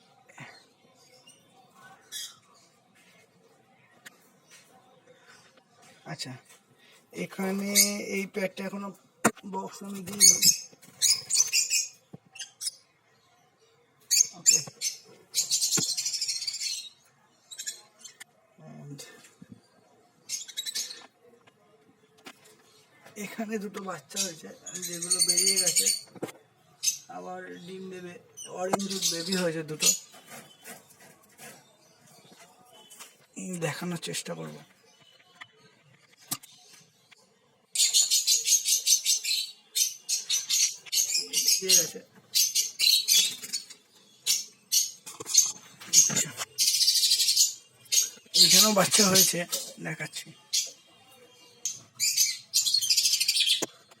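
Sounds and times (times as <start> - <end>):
lovebirds chattering: 0.0 - 13.2, 13.9 - 21.6, 22.2 - 54.0.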